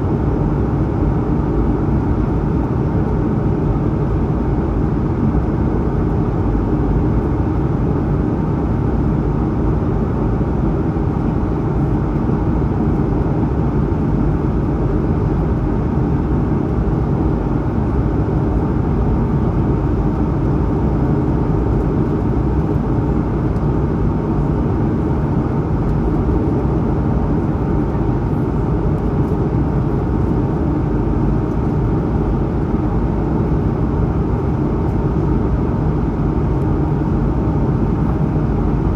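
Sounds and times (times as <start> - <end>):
airplane cabin engine rush: 0.0 - 38.9.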